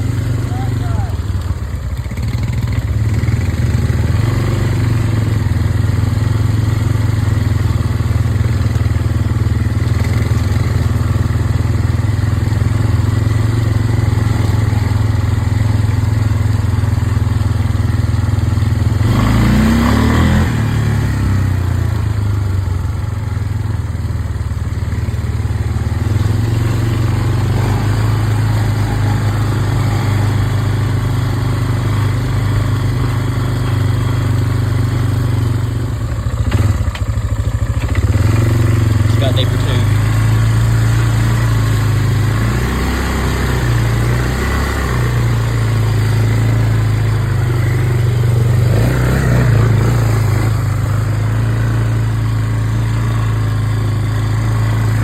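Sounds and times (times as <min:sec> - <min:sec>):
off-road vehicle engine running: 0:00.0 - 0:55.0.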